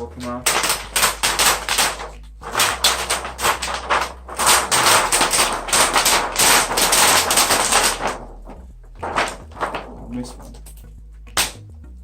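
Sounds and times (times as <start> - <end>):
adhesive tape peeling off plastic: 0.5 - 8.3.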